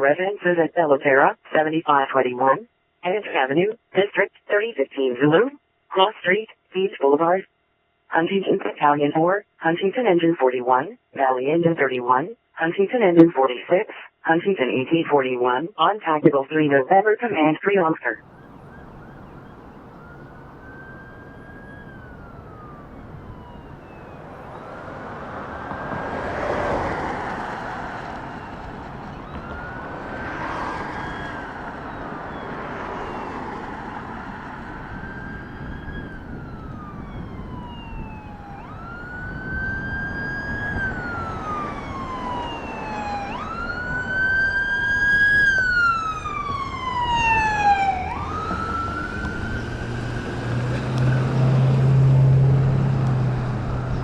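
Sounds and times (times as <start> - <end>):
road noise: 18.1 - 54.0
fire truck siren wailing: 18.2 - 54.0.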